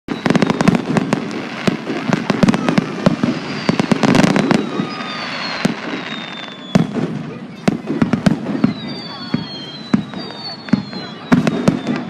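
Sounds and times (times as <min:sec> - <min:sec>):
faint descending whistles: 0:00.1 - 0:00.8, 0:03.5 - 0:07.0, 0:08.6 - 0:12.0
fireworks bangs: 0:00.1 - 0:12.0
fireworks crackling: 0:00.1 - 0:12.0.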